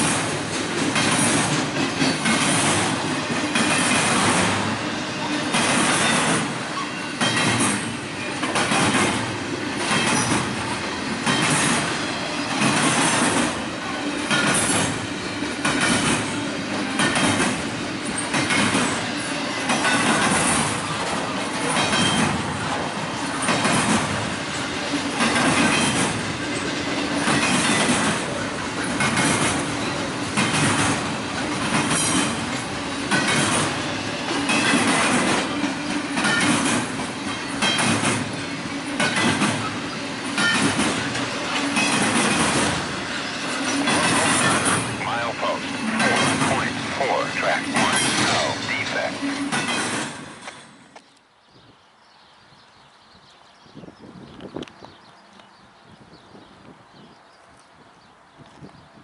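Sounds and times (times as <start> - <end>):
train wheels clicking over rail joints: 0.0 - 44.9.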